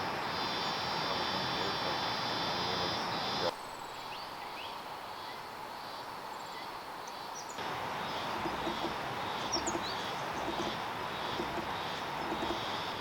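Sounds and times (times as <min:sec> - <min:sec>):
bird chirps: 0:03.1 - 0:13.0
river water rushing: 0:07.6 - 0:13.0.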